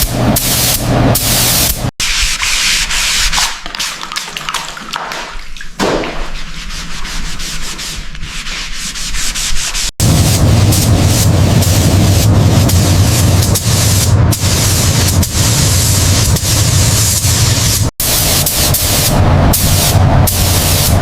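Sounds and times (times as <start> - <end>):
sanding scraping: 6.4 - 9.9.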